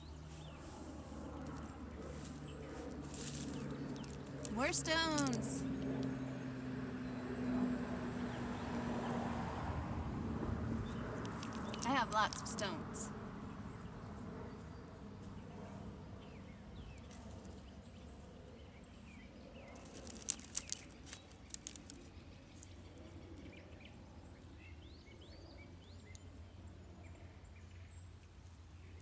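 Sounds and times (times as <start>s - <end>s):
birds chirping faintly: 0.0s - 29.0s
quiet outdoor hum: 0.0s - 29.0s
small stones clicking together: 5.2s - 5.4s, 11.2s - 12.5s, 19.8s - 22.1s.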